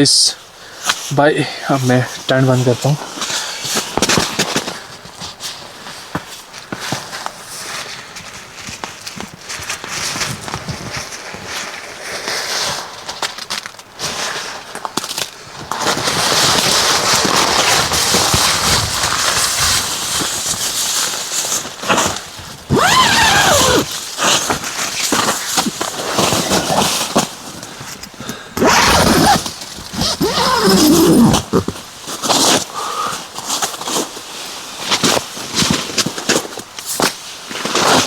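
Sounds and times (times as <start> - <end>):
nylon tent fabric rustling: 19.2 - 27.2, 28.6 - 32.5
squealing pitch slide: 22.7 - 23.9, 28.6 - 29.4, 30.0 - 31.7
tent zipper being pulled: 22.7 - 24.4, 28.6 - 32.5.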